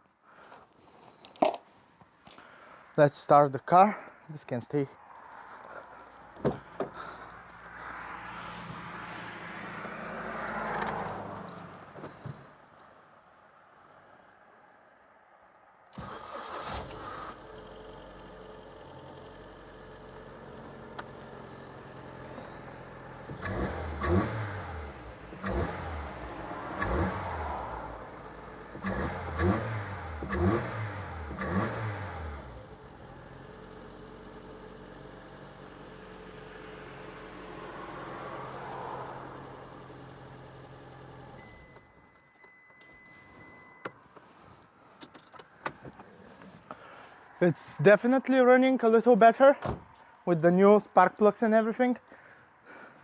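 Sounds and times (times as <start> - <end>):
car engine idling and revving: 5.0 - 13.0, 16.0 - 47.4.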